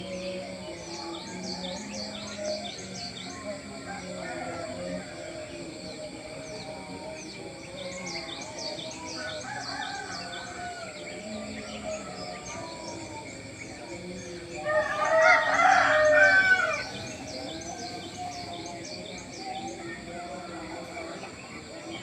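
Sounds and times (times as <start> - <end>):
small birds chirping: 0.0 - 22.0
rooster crowing: 3.8 - 5.4, 9.1 - 11.4, 14.5 - 18.1.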